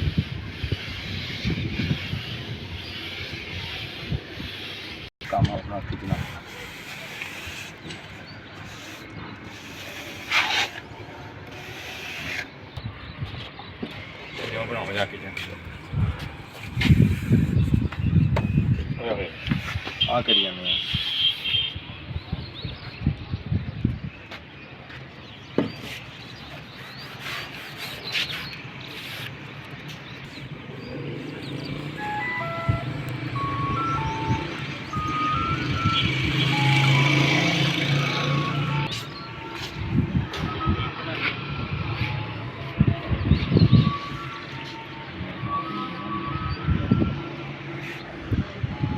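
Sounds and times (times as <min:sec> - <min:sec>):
rough scraping on a hard surface: 0:06.0 - 0:12.6, 0:25.7 - 0:29.5.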